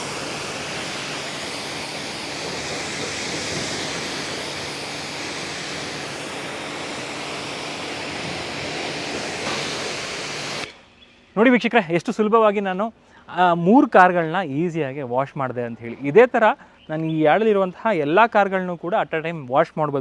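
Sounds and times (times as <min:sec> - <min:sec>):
pressure washer motor humming: 0:00.0 - 0:10.8
water jet hissing: 0:00.0 - 0:10.9.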